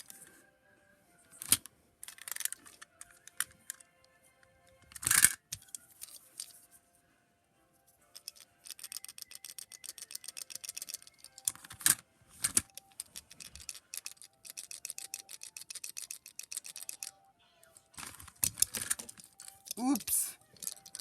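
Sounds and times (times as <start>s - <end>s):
rapid small clicks: 8.2s - 17.1s, 20.4s - 21.0s.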